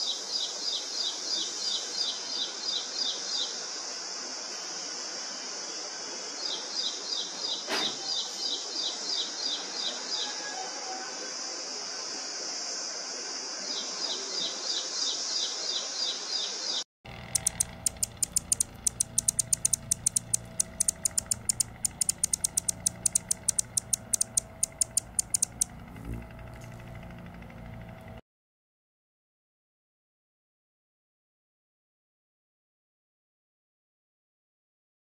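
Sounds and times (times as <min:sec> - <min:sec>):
small bird chirping: 0:17.1 - 0:27.0
hummingbird chip notes: 0:17.1 - 0:28.2.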